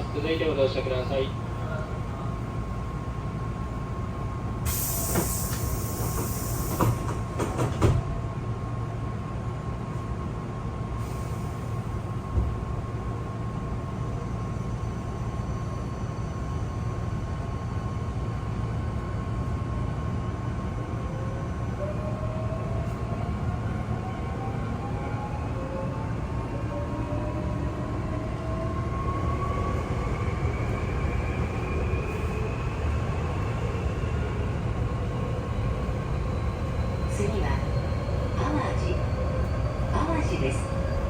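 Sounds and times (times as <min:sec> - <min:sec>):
train carriage rumbling on rails: 0:00.0 - 0:41.0
train doors closing with air hiss: 0:04.6 - 0:08.3, 0:10.9 - 0:12.6.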